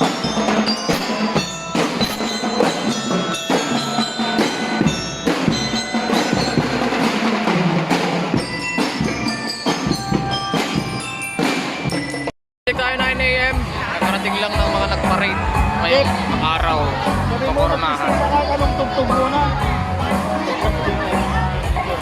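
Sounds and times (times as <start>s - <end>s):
bell lyre melody: 0.0s - 7.4s, 8.3s - 12.3s
drum strikes: 0.0s - 22.0s.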